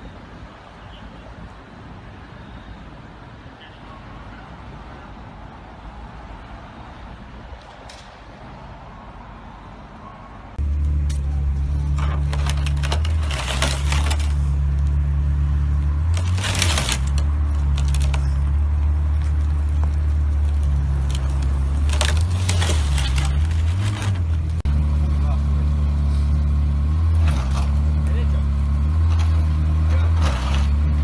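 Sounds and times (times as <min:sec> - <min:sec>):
scraping and rattling noise: 0:11.8 - 0:14.8, 0:16.0 - 0:24.6, 0:30.0 - 0:31.0.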